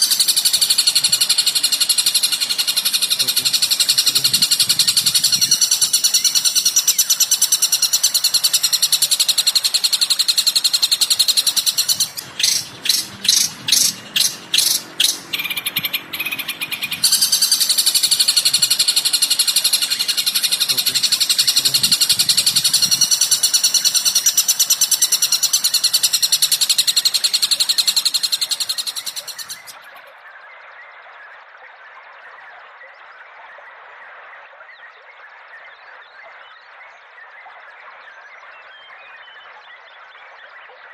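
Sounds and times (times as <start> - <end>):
songbird chattering: 0.0 - 29.9
loud bird calls: 0.0 - 30.1.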